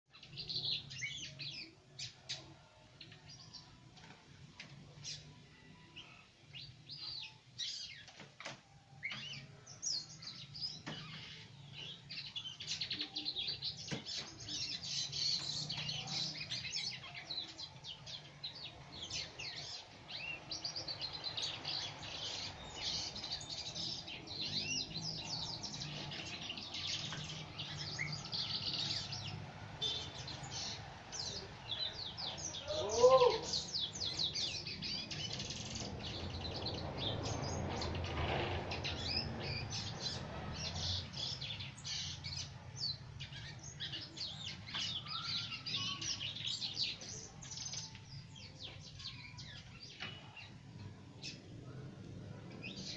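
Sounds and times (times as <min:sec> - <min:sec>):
birds chirping and twittering: 0:00.1 - 0:52.9
wavering bird call: 0:32.5 - 0:33.8.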